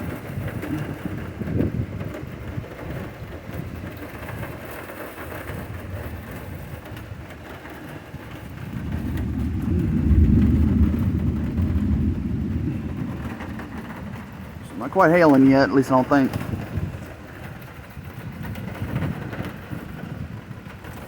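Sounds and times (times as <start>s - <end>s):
low rumble of thunder: 0.0s - 21.0s
steady rain: 0.0s - 21.0s.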